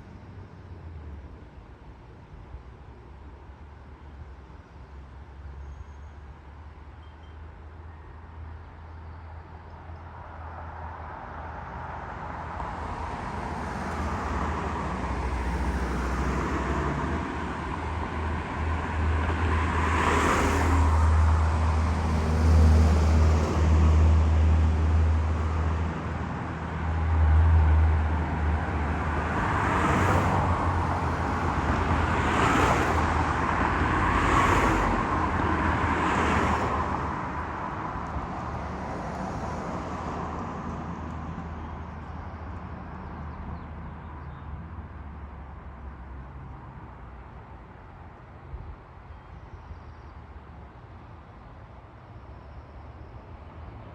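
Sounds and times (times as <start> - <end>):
vehicles whooshing past: 10.5 - 47.6.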